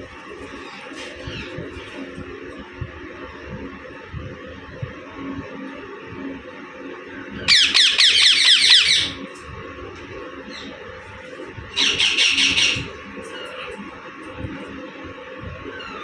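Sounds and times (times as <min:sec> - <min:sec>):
parakeet screeching: 0:07.5 - 0:09.3, 0:11.8 - 0:13.5.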